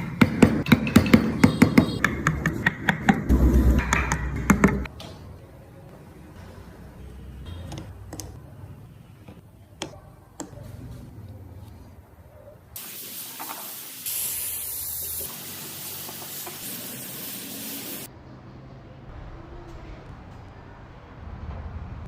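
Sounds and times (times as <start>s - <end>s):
pressurised spray hissing: 12.8s - 18.1s.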